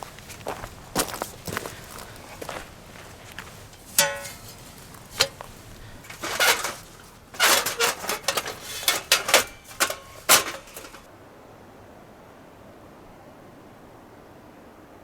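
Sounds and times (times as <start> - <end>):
hard objects clicking and clattering: 3.7 - 11.1.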